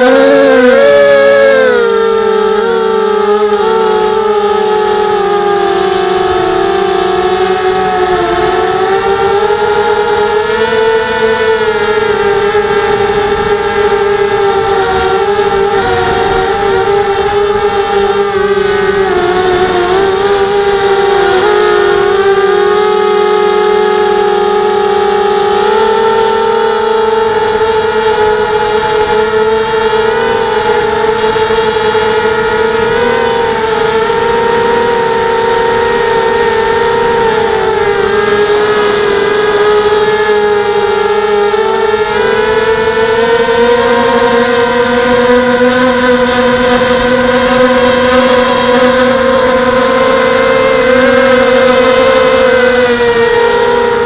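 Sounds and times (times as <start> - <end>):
quadcopter motors whining: 0.0 - 54.0.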